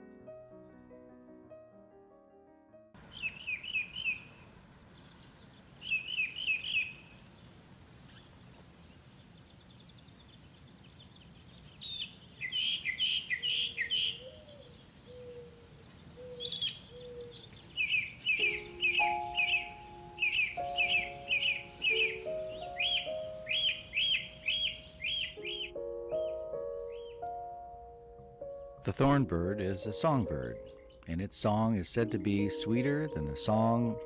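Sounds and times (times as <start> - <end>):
soft piano music: 0.0 - 5.5, 13.0 - 34.0
outdoor hiss: 3.0 - 25.6
songbird singing: 3.0 - 34.0.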